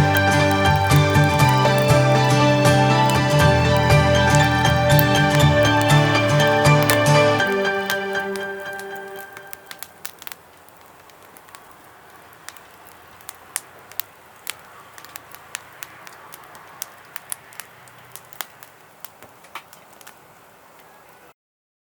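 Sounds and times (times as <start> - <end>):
wood fire crackling: 0.0 - 21.3
low steady hiss: 6.7 - 21.3.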